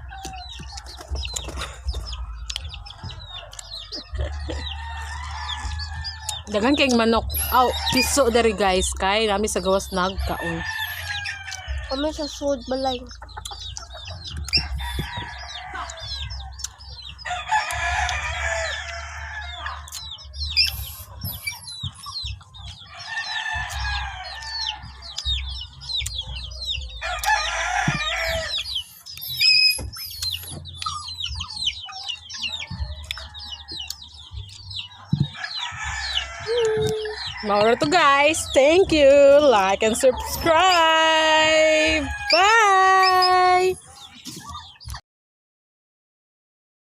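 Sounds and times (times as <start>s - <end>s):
roosters crowing: 0.0s - 12.2s, 14.1s - 43.8s
high chirps: 28.4s - 43.8s.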